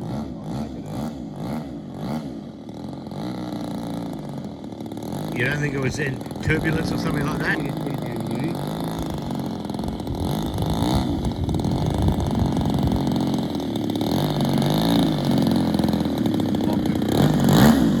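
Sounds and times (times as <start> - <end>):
model airplane engine revving: 0.0 - 18.0.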